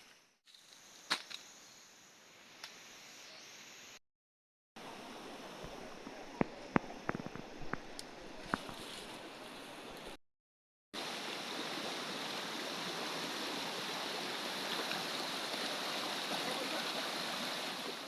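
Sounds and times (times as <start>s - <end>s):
water rushing: 4.8s - 10.2s, 11.0s - 18.0s.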